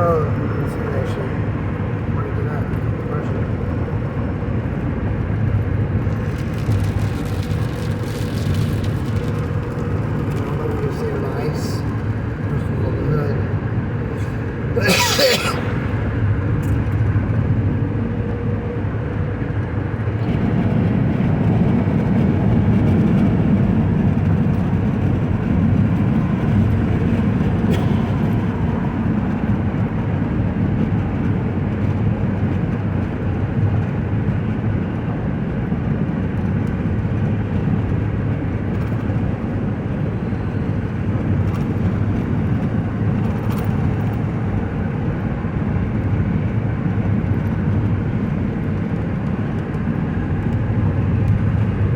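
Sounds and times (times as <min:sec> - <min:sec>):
vehicle engine rumble: 0:00.0 - 0:51.9
tyre noise on wet road: 0:03.6 - 0:12.6.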